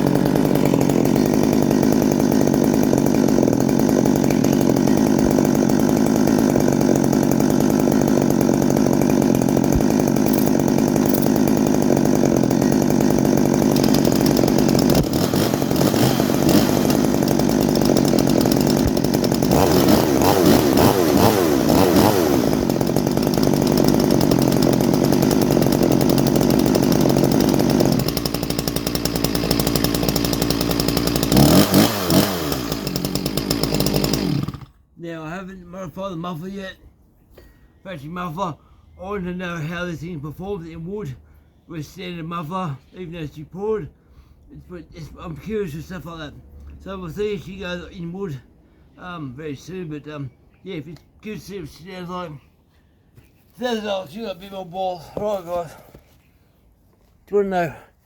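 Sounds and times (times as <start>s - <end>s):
chainsaw revving: 0.0s - 34.8s.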